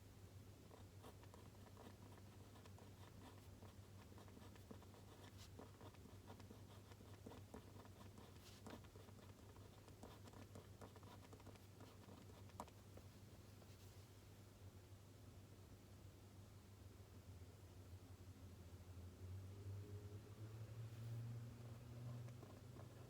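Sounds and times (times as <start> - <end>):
pen scratching on paper: 0.7 - 12.8, 21.7 - 23.0
steady low hum: 20.2 - 23.0.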